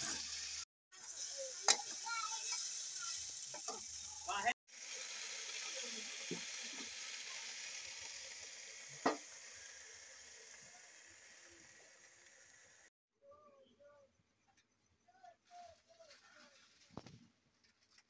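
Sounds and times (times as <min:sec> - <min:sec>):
greens sizzling in a pan: 0:00.0 - 0:12.9.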